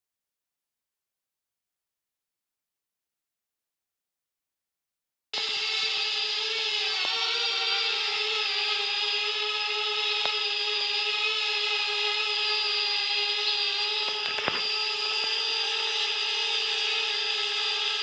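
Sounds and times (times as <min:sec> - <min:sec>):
drone propellers whining: 0:05.4 - 0:18.0.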